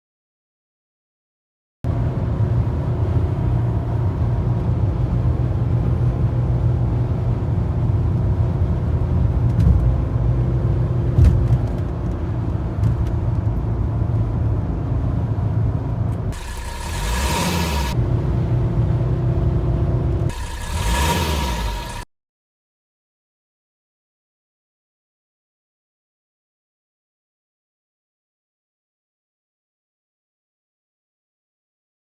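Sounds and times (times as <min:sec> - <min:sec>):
diesel car engine rumbling: 0:01.9 - 0:22.0.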